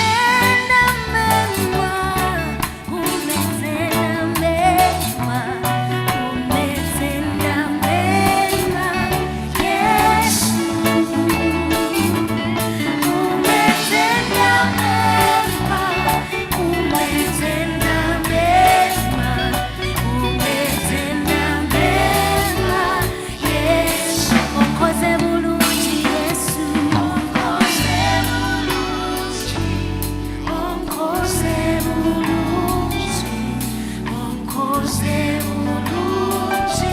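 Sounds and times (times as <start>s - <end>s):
gospel band playing: 0.0s - 36.9s
singing: 12.9s - 29.8s, 30.4s - 36.9s.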